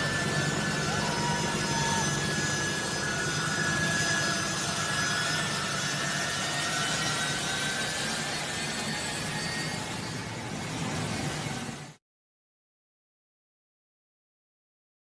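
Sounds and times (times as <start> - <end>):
faint high whine: 0.0 - 12.0
jet engines running: 0.0 - 12.0.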